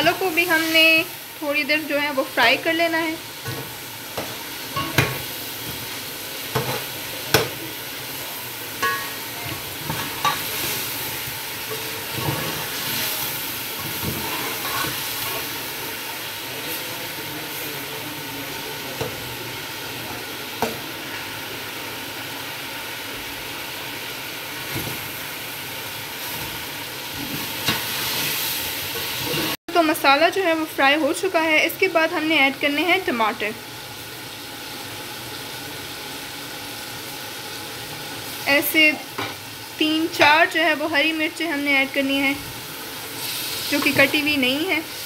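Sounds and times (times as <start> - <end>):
chicken sizzling in oil: 0.0 - 45.0.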